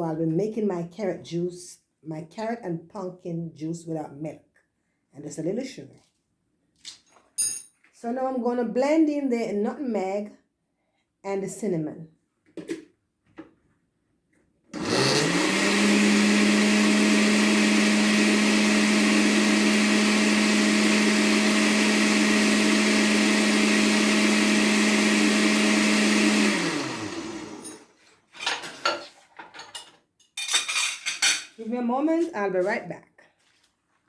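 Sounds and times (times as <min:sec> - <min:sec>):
electric blender running: 0:14.8 - 0:27.8.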